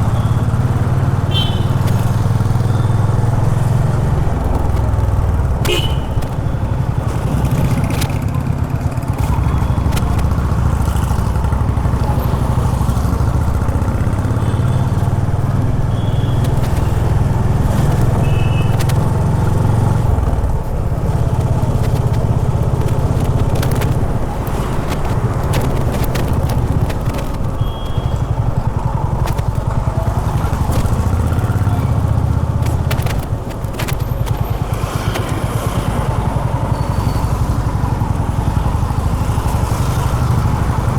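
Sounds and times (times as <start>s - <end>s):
motorcycle engine running: 0.0s - 40.9s
clicks: 29.1s - 35.7s.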